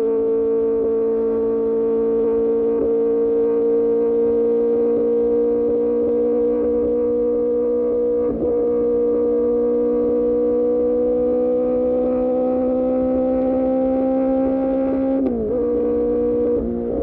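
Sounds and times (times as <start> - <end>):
motorcycle engine droning: 0.0 - 17.0.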